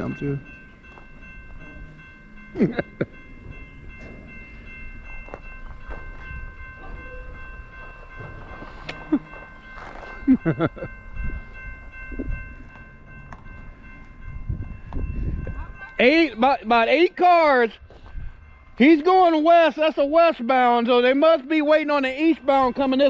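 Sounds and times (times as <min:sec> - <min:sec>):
train knocks: 0:00.0 - 0:17.2
crossing bell ringing tone: 0:00.0 - 0:23.0
freight train rumbling: 0:00.0 - 0:23.0.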